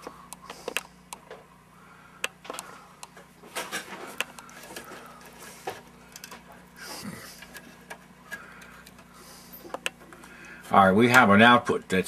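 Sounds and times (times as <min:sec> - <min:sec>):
test leads clicking and rattling: 0:02.2 - 0:10.3.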